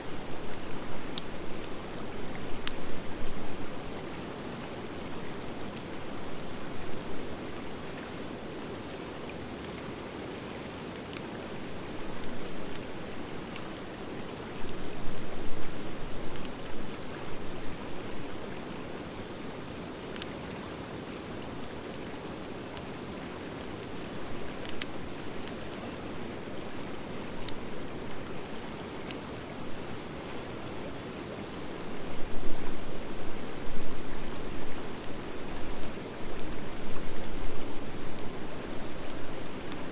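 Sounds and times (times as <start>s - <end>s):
fire hissing and crackling: 0.0s - 30.3s, 31.4s - 39.9s.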